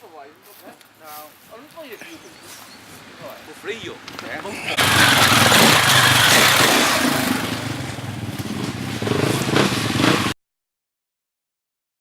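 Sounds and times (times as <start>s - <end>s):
rushing noise: 4.5s - 10.3s
motorcycle engine running: 4.7s - 10.3s.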